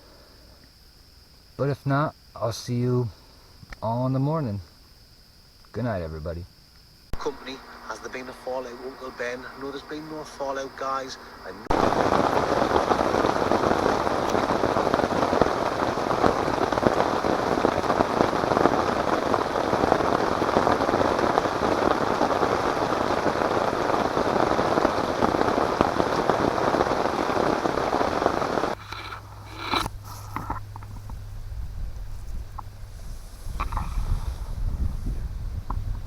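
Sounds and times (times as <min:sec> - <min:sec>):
heavy rain falling: 0:07.2 - 0:29.5.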